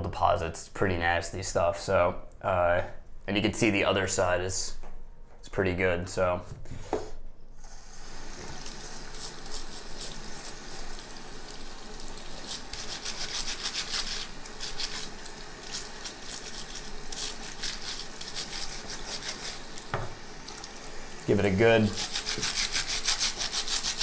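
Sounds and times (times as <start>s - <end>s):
steady hiss: 6.7s - 24.0s
scratchy scrubbing strokes: 8.4s - 24.0s.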